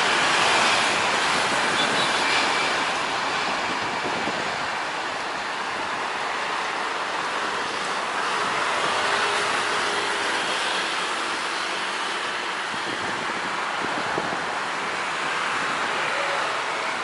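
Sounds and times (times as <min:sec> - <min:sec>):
jet engines at takeoff power: 0:00.0 - 0:17.0.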